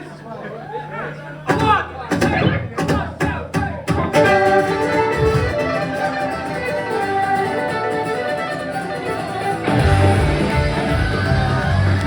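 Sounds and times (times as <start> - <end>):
fiddle melody: 4.1 - 12.0.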